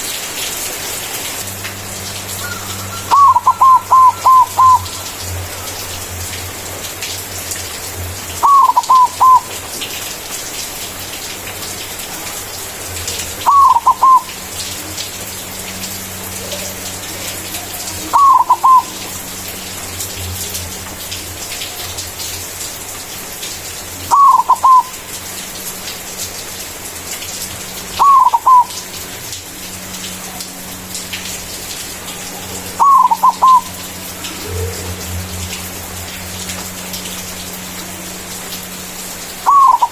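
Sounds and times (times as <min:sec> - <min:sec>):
dove cooing: 0:02.4 - 0:05.6, 0:08.4 - 0:09.5, 0:13.4 - 0:14.3, 0:16.4 - 0:19.2, 0:24.1 - 0:25.0, 0:28.0 - 0:28.8, 0:32.3 - 0:35.2, 0:39.4 - 0:39.9.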